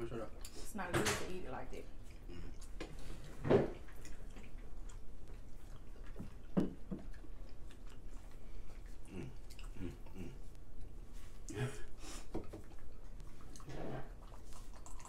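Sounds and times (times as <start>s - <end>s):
people chewing and eating: 1.8s - 15.0s.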